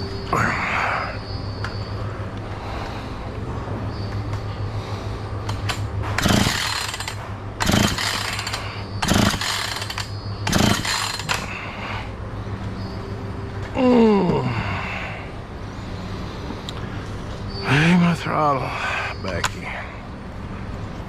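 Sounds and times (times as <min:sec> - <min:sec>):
chainsaw starter cord pulls: 0:06.2 - 0:11.4.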